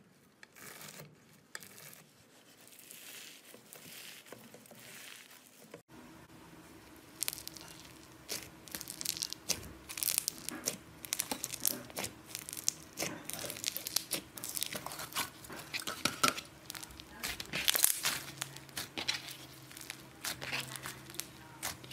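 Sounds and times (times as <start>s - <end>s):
slime crackling and popping: 7.1s - 21.9s.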